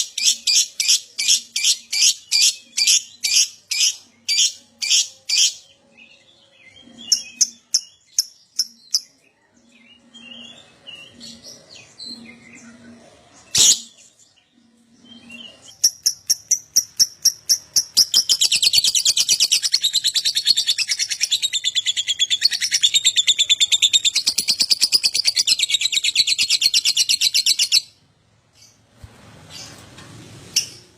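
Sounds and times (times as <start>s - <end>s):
lovebird chirping and trilling: 15.2s - 28.0s.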